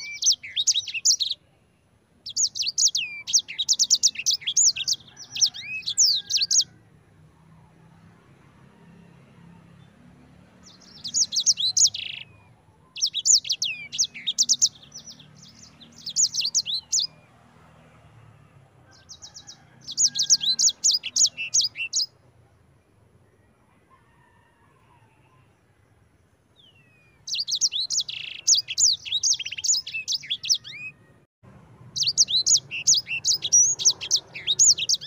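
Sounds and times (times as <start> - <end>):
songbird trilling: 0.0 - 1.4, 2.2 - 6.7, 10.7 - 17.2, 19.2 - 22.1, 26.6 - 31.0, 32.0 - 35.0.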